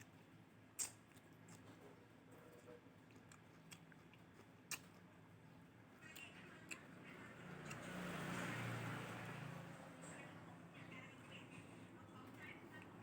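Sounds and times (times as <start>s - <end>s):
mouth clicks and smacks: 0.8s - 1.6s, 3.1s - 5.0s
noisy chewing: 0.8s - 5.2s, 6.0s - 9.5s.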